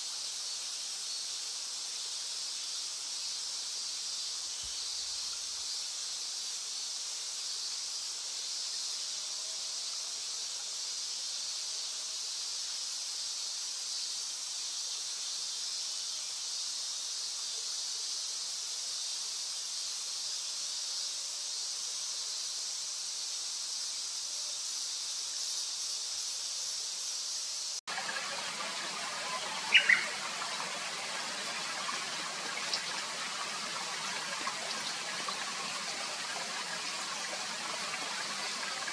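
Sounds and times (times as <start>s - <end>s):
insects chorus: 0.0s - 38.9s
bird sharp call: 29.6s - 30.2s.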